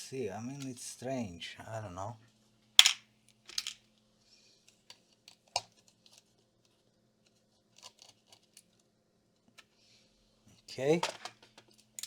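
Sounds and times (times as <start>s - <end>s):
laptop parts clicking and tapping: 4.7s - 6.3s.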